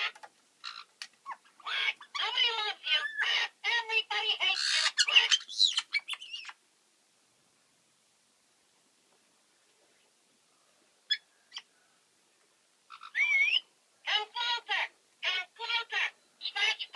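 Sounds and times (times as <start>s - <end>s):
parrots squawking and chattering: 0.0s - 6.6s, 11.1s - 11.7s, 12.9s - 16.9s.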